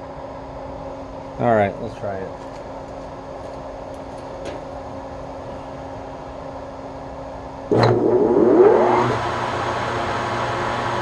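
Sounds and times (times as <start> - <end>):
steady electrical hum: 0.0 - 11.0
lathe motor whine: 7.7 - 11.0.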